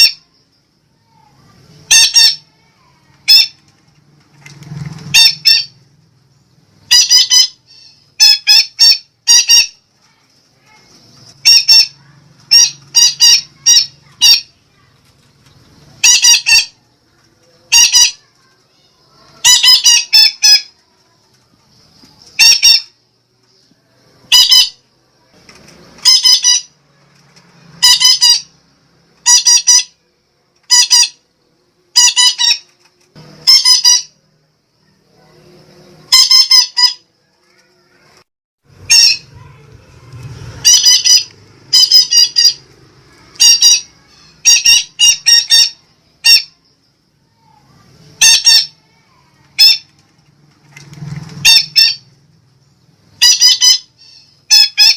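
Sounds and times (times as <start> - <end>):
parakeet squawking: 1.8 - 3.6, 5.1 - 5.8, 6.8 - 9.8, 10.7 - 14.6, 16.0 - 16.8, 17.7 - 18.3, 19.2 - 20.8, 22.4 - 23.0, 24.2 - 24.8, 26.0 - 26.8, 27.8 - 28.6, 29.2 - 30.0, 30.6 - 31.2, 31.9 - 32.7, 33.4 - 34.2, 36.1 - 37.0, 38.8 - 39.6, 40.4 - 46.6, 48.2 - 49.9, 51.4 - 52.1, 53.2 - 54.9.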